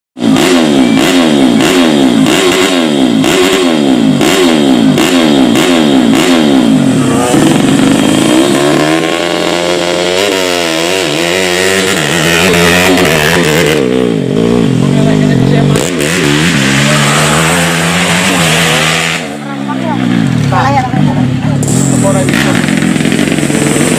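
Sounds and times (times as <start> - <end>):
other engines: 0.2 - 23.9
small motorcycle engine revving: 0.2 - 23.9.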